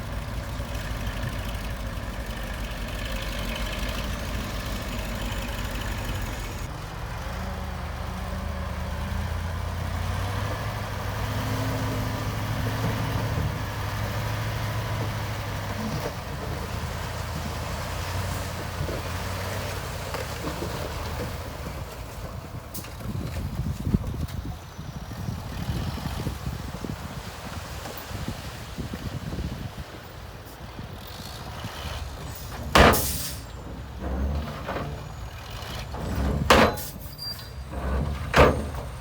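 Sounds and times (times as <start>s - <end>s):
heavy diesel engine droning: 0.0s - 23.3s, 30.6s - 39.0s.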